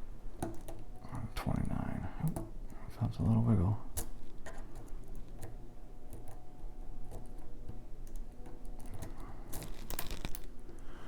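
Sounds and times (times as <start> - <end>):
lock pick clicking pins: 3.9 - 10.9.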